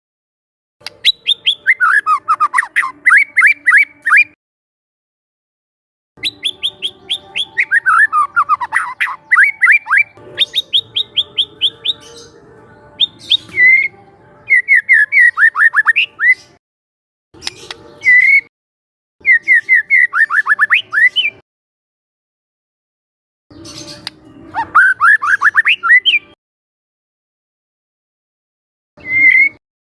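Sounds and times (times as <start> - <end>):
bird singing chips and whistles: 0.8 - 4.4, 6.2 - 12.3, 13.0 - 13.9, 14.5 - 16.6, 17.4 - 18.5, 19.2 - 21.4, 23.5 - 26.3, 29.0 - 29.6.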